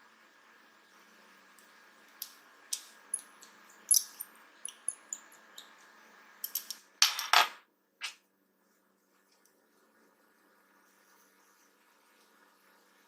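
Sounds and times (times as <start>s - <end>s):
small parts clicking: 1.6s - 5.7s, 6.4s - 7.2s.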